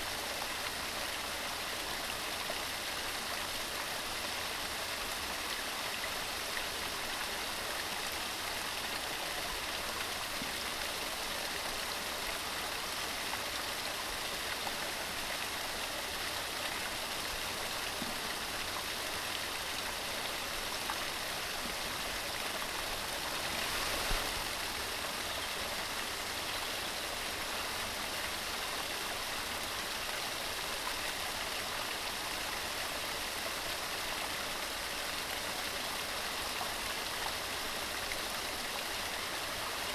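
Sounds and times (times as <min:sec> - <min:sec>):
stream rushing: 0:22.0 - 0:25.0.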